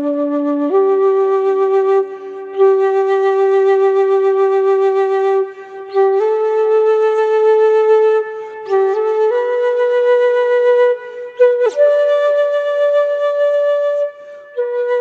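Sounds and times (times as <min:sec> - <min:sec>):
flute playing slow melody: 0:00.0 - 0:15.0.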